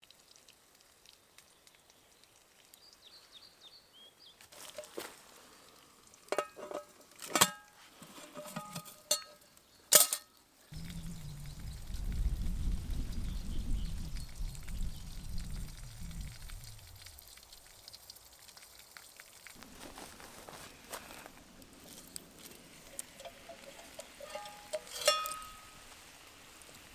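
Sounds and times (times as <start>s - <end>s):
metal clinks and knocks: 6.4s - 7.7s, 8.4s - 10.3s, 21.9s - 25.8s
low rumbling noise: 10.7s - 17.4s.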